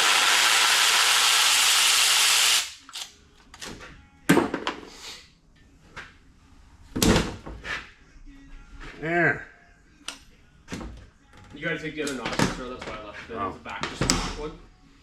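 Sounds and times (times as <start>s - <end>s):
power tool running: 0.0s - 2.8s.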